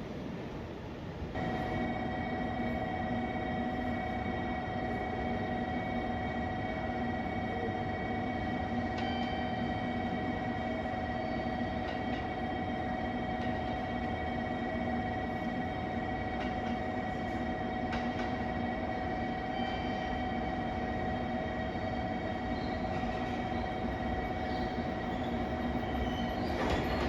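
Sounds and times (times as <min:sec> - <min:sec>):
train rumbling: 0:00.0 - 0:27.0.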